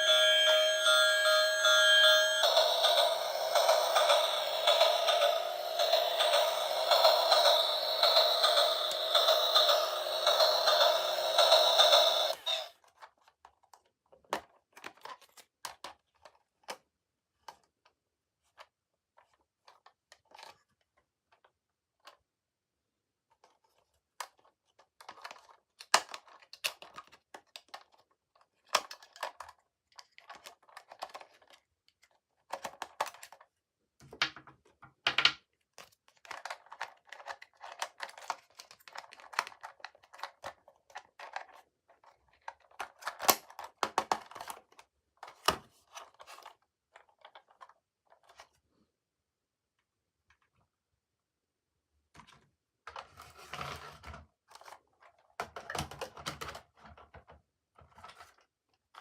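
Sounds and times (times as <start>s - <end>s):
plastic and cardboard packaging crinkling: 23.4s - 33.6s, 35.7s - 48.6s.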